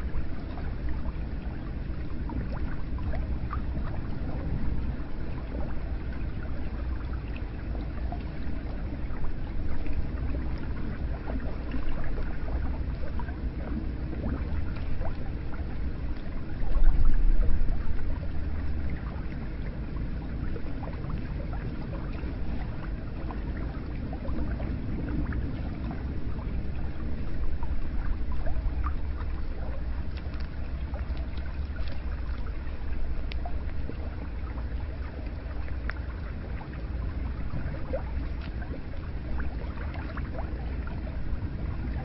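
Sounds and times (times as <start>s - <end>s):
low rumble: 0.0s - 42.0s
water pouring and splashing: 0.0s - 42.0s.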